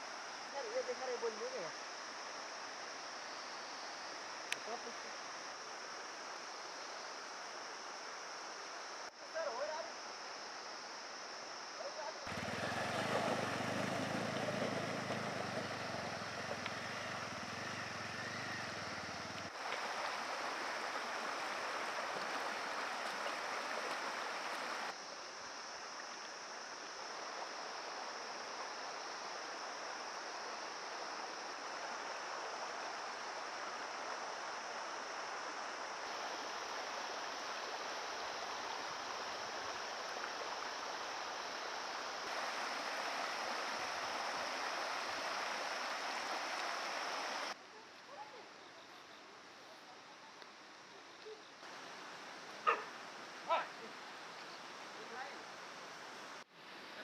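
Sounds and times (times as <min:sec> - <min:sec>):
river water rushing: 0:12.3 - 0:27.0, 0:31.6 - 0:47.6, 0:51.6 - 0:57.0.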